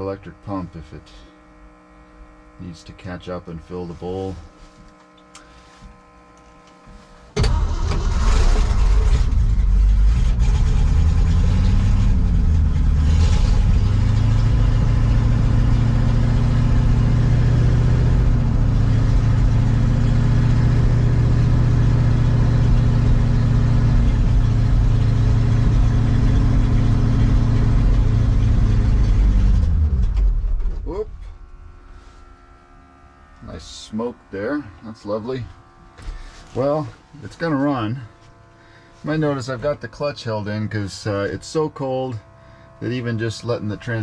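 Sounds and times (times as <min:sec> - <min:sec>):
truck engine cold starting: 0:07.3 - 0:31.9.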